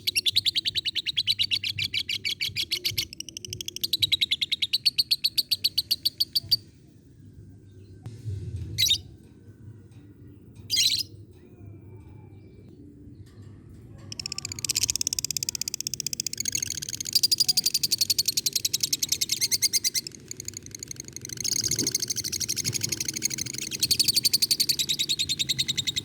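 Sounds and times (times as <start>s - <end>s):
lovebird fast rattling chatter: 14.1s - 26.0s.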